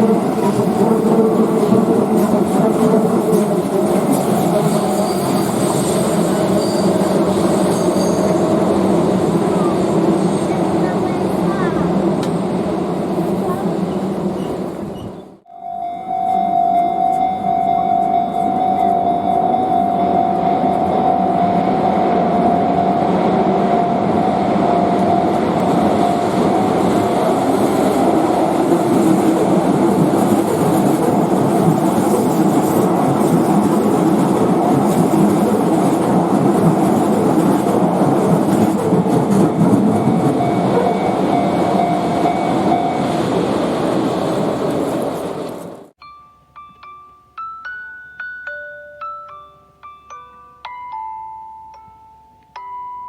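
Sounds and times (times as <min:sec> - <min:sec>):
crossing warning bell: 0:03.4 - 0:10.8, 0:15.5 - 0:28.6, 0:39.3 - 0:43.7, 0:46.0 - 0:53.0
train wheels clattering on rail: 0:24.8 - 0:45.9.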